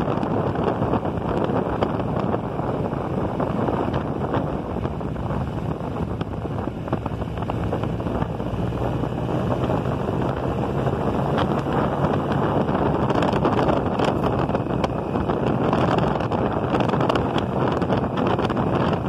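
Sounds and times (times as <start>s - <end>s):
motorcycle engine running: 0.0s - 19.0s
wind rushing over microphone: 0.0s - 19.0s.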